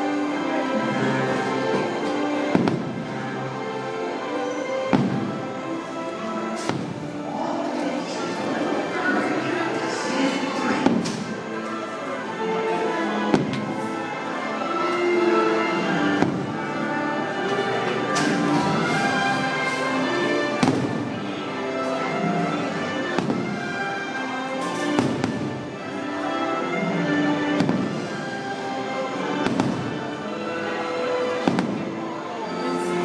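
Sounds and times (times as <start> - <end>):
loud music: 0.0 - 33.0
fireworks bursting with bangs: 2.5 - 3.5, 4.8 - 7.3, 10.5 - 11.6, 13.3 - 14.0, 14.9 - 17.3, 18.2 - 30.3, 31.1 - 32.0.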